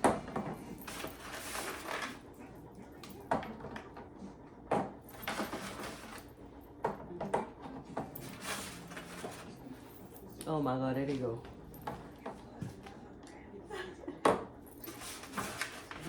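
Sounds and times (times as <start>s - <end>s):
household items knocking and clunking: 0.0s - 2.1s, 4.7s - 6.2s.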